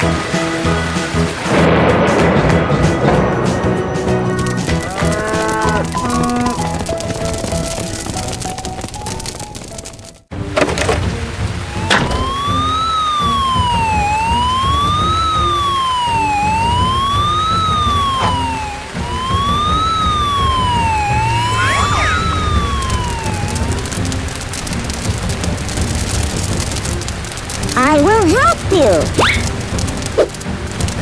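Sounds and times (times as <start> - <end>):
emergency vehicle siren wailing: 12.7 - 24.2.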